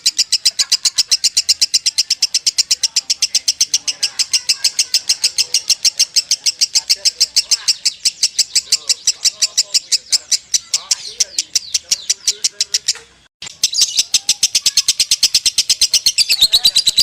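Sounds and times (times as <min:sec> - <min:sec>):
lovebird chattering song: 0:00.0 - 0:17.0.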